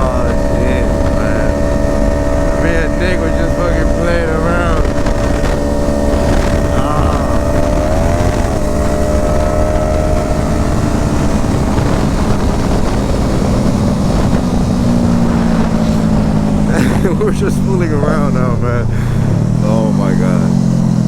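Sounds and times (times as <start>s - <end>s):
motorcycle engine cruising: 0.0s - 21.0s
wind rush on microphone: 0.0s - 21.0s.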